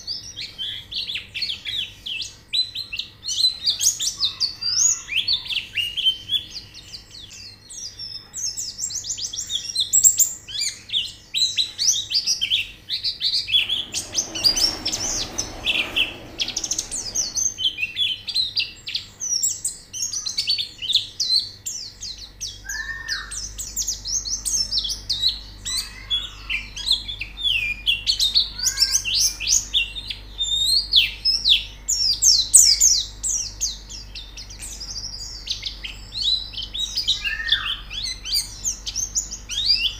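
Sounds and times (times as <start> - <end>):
hiss: 13.6 - 17.7.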